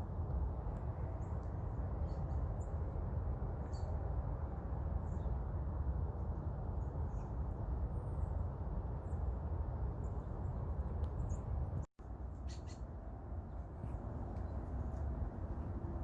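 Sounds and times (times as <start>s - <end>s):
small birds chirping: 10.0s - 15.1s.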